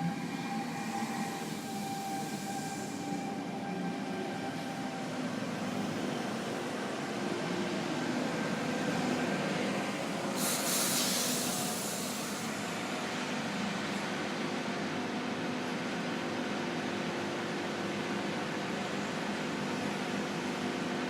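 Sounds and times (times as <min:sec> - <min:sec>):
electric train rumbling: 0:00.0 - 0:21.0
air brakes hissing: 0:00.5 - 0:03.4, 0:10.3 - 0:12.8.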